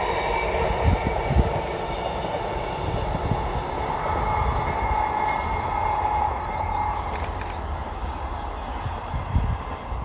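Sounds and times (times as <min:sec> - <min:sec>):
distant train rumble: 0:00.0 - 0:10.0
brief clicks: 0:07.1 - 0:07.6.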